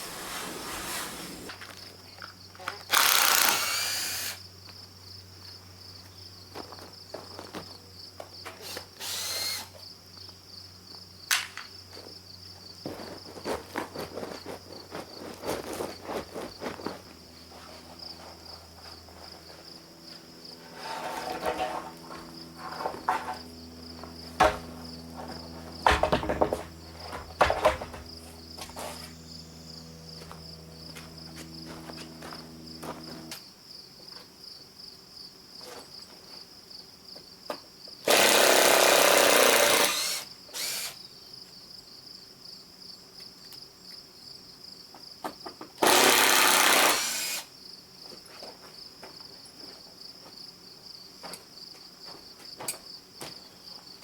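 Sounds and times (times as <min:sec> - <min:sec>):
loud bursts of hissing: 0:00.0 - 0:01.5
crickets chirping: 0:00.0 - 0:54.0
low machine hum: 0:17.0 - 0:33.4
knocks: 0:24.4 - 0:24.7, 0:25.8 - 0:28.8.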